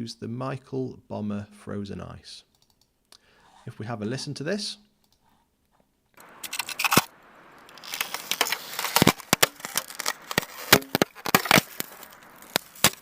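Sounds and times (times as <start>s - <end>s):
ice cracking: 6.2s - 13.0s.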